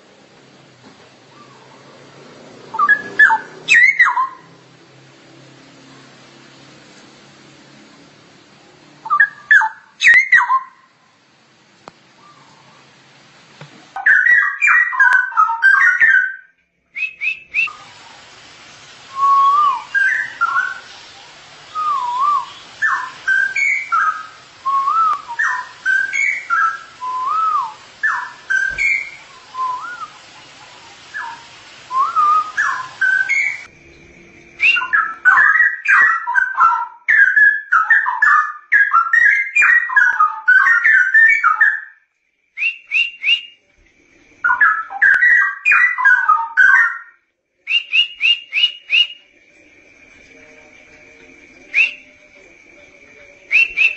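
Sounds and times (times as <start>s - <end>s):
bird whistling song: 2.7s - 4.6s, 9.0s - 10.9s, 14.0s - 17.9s, 19.1s - 43.6s, 44.4s - 49.4s, 50.2s - 53.9s.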